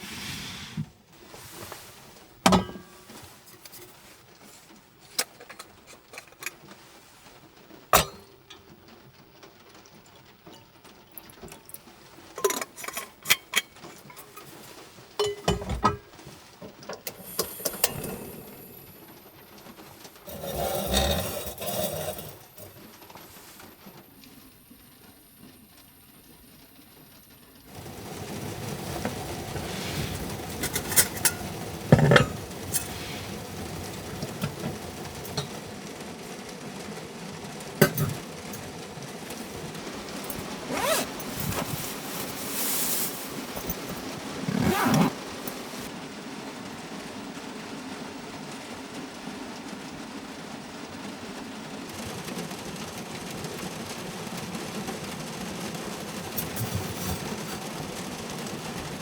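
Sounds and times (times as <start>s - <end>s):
rustling: 0.0s - 24.0s, 27.7s - 45.9s, 54.7s - 59.0s
steady hiss: 0.0s - 50.0s
cookware clinking and knocking: 2.5s - 3.9s, 5.2s - 6.6s, 8.0s - 8.7s, 12.3s - 18.7s, 20.3s - 22.8s, 28.9s - 35.8s, 37.8s - 42.6s, 56.3s - 57.9s.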